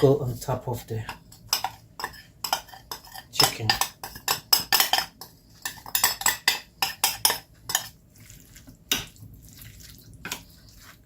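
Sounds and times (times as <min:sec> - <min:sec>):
utensil clinking against bowl: 0:01.0 - 0:08.0.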